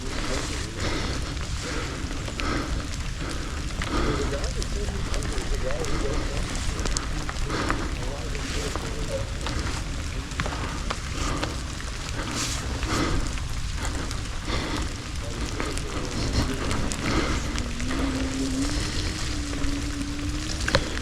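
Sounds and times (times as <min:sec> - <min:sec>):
tyres crackling on dirt: 0:00.0 - 0:21.0
wind rumbling over microphone: 0:00.0 - 0:21.0
low motor whine: 0:16.0 - 0:21.0.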